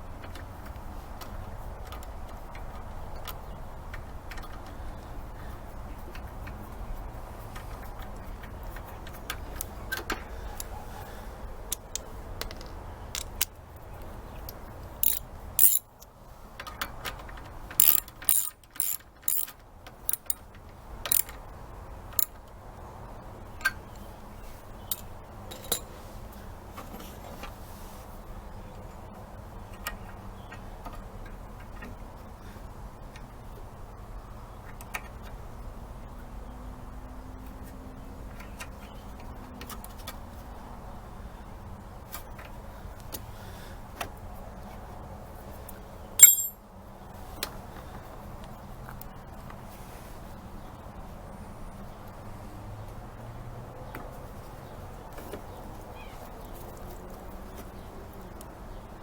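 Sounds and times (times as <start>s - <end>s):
metal parts clicking and clinking: 11.7s - 13.5s, 14.5s - 16.1s, 17.7s - 19.5s, 20.1s - 20.4s, 21.1s - 21.4s, 46.2s - 46.6s.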